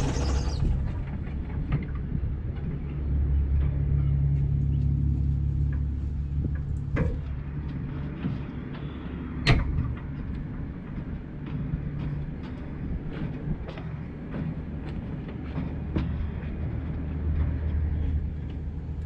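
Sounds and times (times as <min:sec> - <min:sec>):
truck engine humming: 0:00.0 - 0:01.6.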